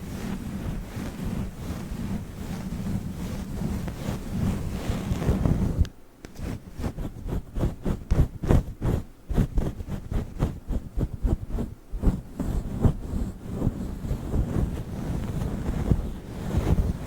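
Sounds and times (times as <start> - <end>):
nails tapping and scratching microphone: 0.0 - 17.0.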